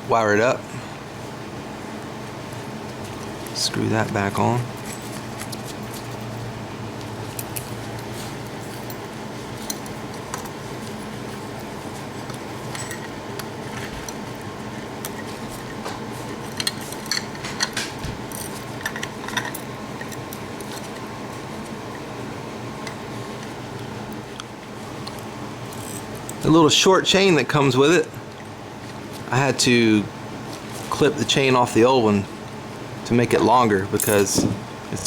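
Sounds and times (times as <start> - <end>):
steady low hum: 0.0 - 35.0
small metal parts clinking: 16.4 - 20.9, 34.0 - 34.4.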